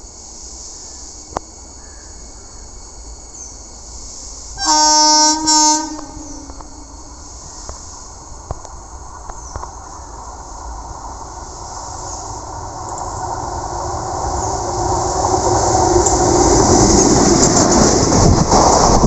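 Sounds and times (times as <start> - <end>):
low train rumble: 0.0 - 19.0
locomotive horn blasts: 4.6 - 7.3.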